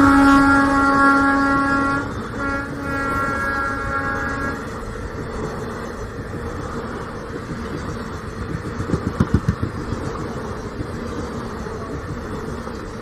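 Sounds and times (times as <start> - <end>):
train knocks: 0.0 - 13.0
train rolling with low rumble: 0.0 - 13.0.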